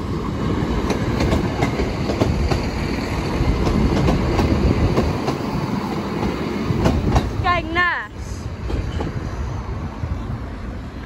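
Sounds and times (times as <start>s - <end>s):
train rumbling: 0.0s - 11.0s
wheels clicking over rail joints: 0.8s - 7.4s.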